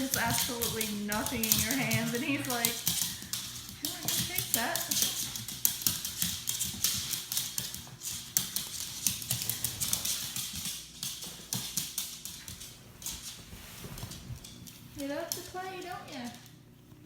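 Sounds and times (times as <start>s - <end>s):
ball tapping on hard floor: 0.0s - 13.2s
dog claws clicking on floor: 0.0s - 17.0s.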